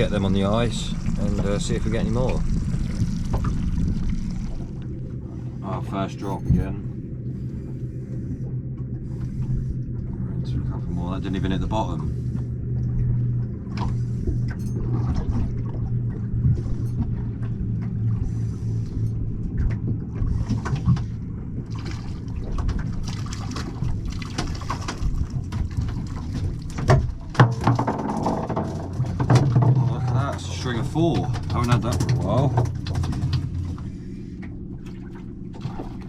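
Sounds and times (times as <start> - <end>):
boat engine idling: 0.0 - 36.0
water sloshing: 0.0 - 36.0
sharp knocks: 26.8 - 29.9.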